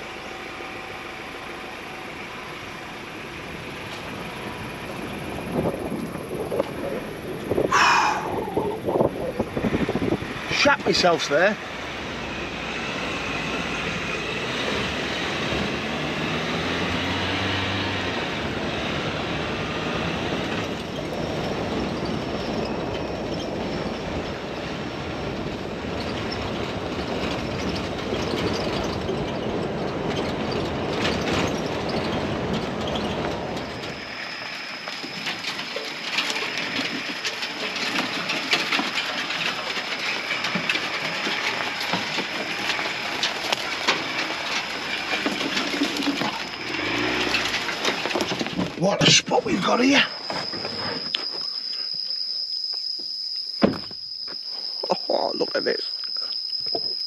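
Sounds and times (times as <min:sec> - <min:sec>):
truck driving rumble: 0:00.0 - 0:51.8
knocks and rattles over bumps: 0:03.3 - 0:51.5
steady high tone: 0:07.7 - 0:08.9, 0:48.8 - 0:57.0.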